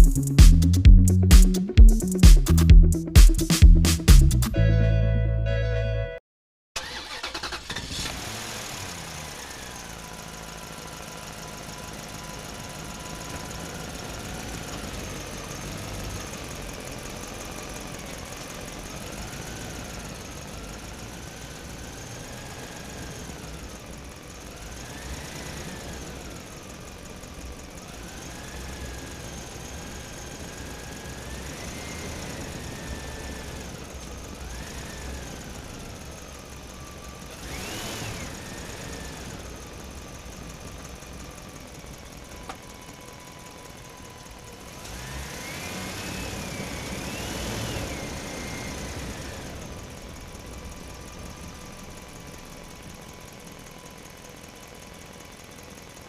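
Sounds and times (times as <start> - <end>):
small motor whining: 36.9 - 39.6.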